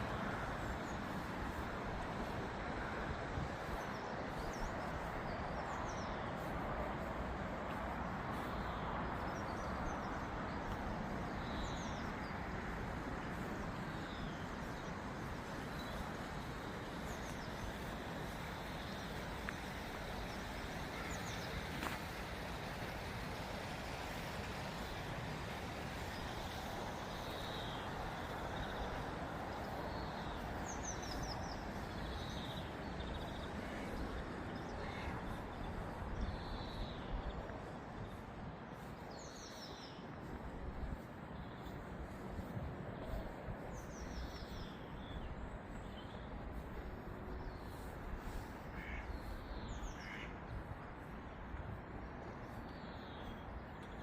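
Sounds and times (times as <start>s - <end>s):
outdoor background noise: 0.0s - 54.0s
small birds chirping: 25.5s - 51.1s.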